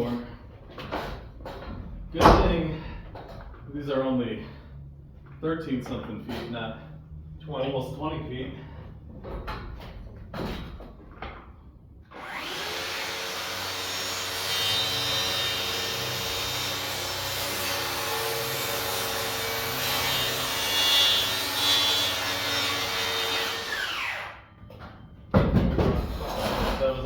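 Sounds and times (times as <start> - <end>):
power saw cutting wood: 12.1 - 24.4.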